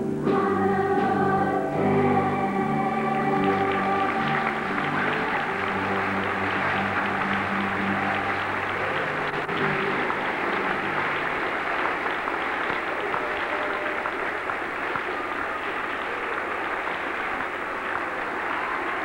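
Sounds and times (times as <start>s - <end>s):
music held notes: 0.0s - 14.0s
audience applauding: 2.9s - 19.0s.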